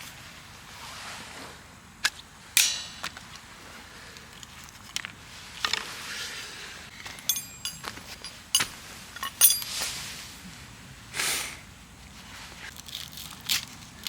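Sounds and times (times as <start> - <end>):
ringing clink: 7.1 - 10.0
sharp clicks and knocks: 7.2 - 9.8.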